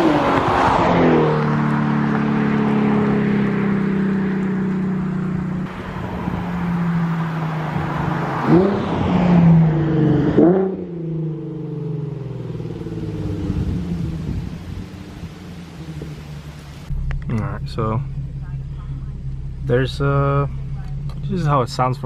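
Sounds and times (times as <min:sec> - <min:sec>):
car exhaust revving: 0:00.0 - 0:22.0.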